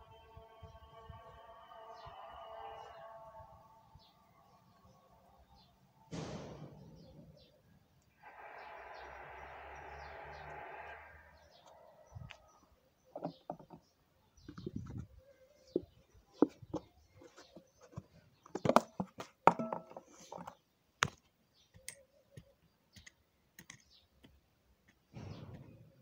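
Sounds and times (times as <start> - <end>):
sharp knocks: 6.1 - 7.4.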